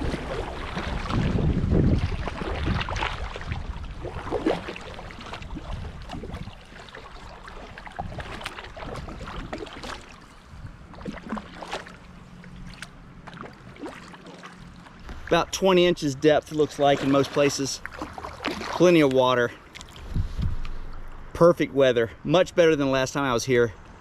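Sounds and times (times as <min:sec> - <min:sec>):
wind rumble on microphone: 0:00.0 - 0:11.4, 0:19.9 - 0:21.3
paddle strokes splashing water: 0:00.0 - 0:21.1.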